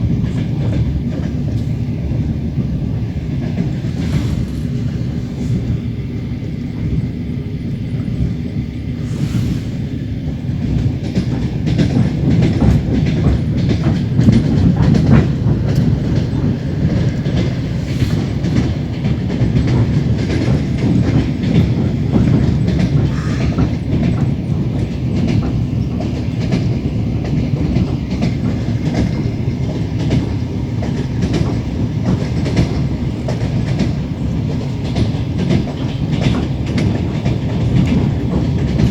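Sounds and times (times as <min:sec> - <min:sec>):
wheels clacking over rail joints: 0:00.0 - 0:06.0, 0:08.0 - 0:38.9
train carriage rumble: 0:00.0 - 0:38.9.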